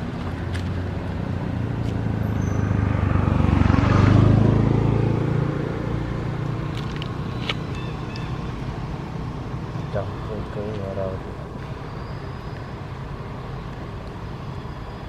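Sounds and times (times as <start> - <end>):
vehicle engine passing by: 0.0 - 10.5.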